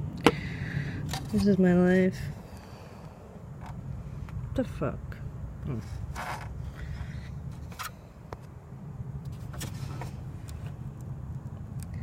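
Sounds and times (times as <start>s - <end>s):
scraping and rustling: 5.8s - 8.0s.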